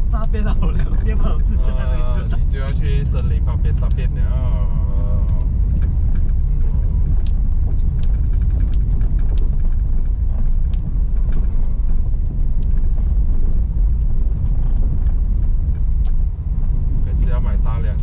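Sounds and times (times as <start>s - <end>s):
engine and tyres rumbling: 0.0s - 18.0s
small clicks and knocks: 5.3s - 16.2s.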